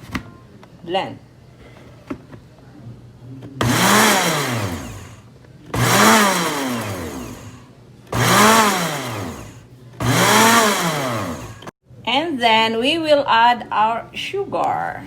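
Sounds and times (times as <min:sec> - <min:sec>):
electric blender motor bursts: 0:03.6 - 0:11.7.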